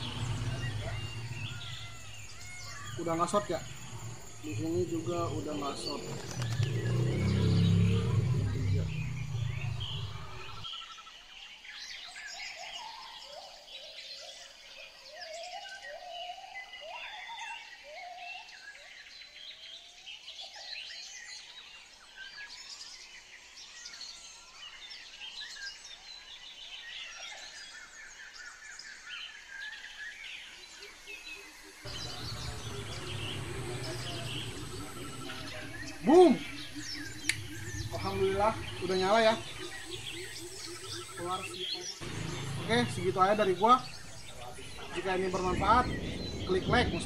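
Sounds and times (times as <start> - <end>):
birds chirping: 0.0 - 47.0
low steady hum: 31.9 - 47.0.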